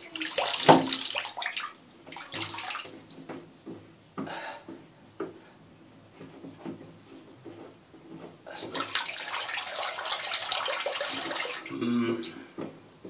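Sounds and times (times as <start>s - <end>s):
water running into bath: 0.0s - 3.2s, 8.6s - 11.8s
splashes and knocks: 0.0s - 3.5s, 8.7s - 11.8s.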